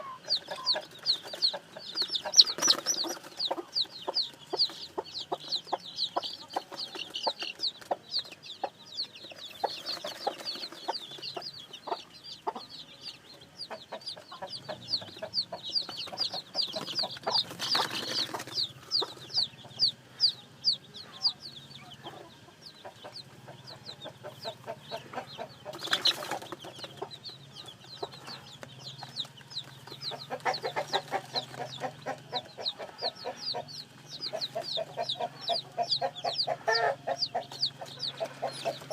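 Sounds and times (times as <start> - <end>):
chickens clucking: 0.0 - 38.9
chicks peeping: 0.0 - 38.9.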